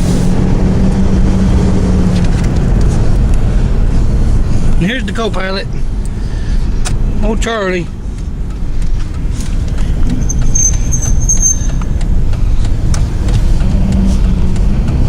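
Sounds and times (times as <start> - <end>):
truck road and engine rumble: 0.0 - 15.0
faint high squeak: 10.2 - 11.9.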